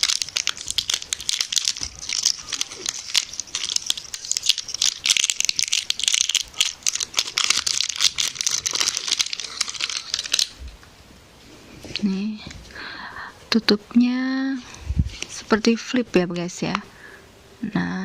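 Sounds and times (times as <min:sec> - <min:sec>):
plastic seal crinkling and crackling: 0:00.0 - 0:10.6.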